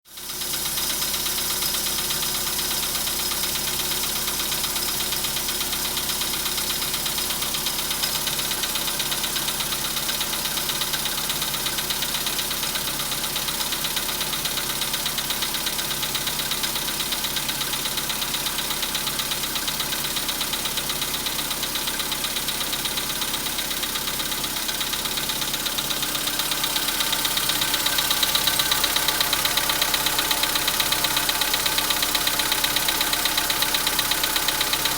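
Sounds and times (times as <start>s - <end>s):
petrol engine idling with knock: 0.2s - 34.9s.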